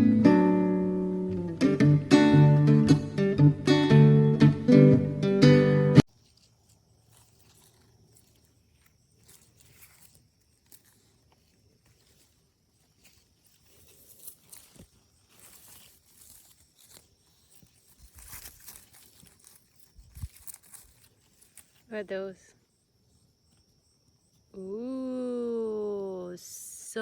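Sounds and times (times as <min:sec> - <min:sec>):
leaves rustling and crackling: 0:06.1 - 0:22.4.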